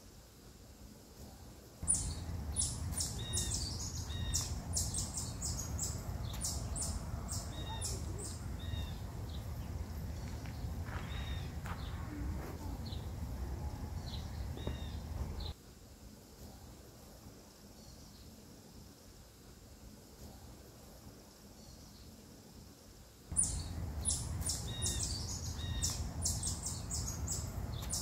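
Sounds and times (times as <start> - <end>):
birds chirping: 1.8 - 15.6, 23.3 - 28.0
steady low rumble: 1.8 - 15.6, 23.3 - 28.0.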